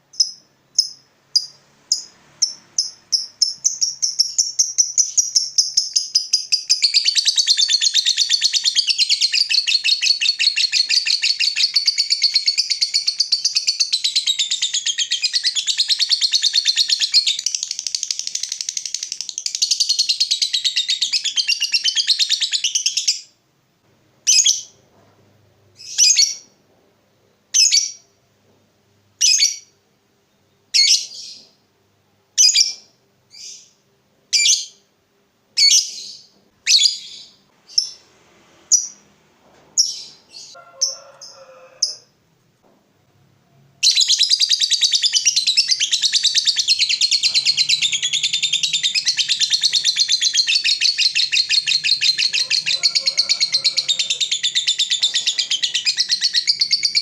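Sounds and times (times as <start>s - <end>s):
lovebird chattering trill: 0.1s - 23.2s, 43.8s - 57.0s.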